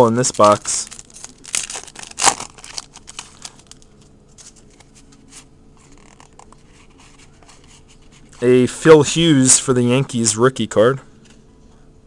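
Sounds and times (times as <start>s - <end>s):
trading cards rustling: 0.0s - 8.3s.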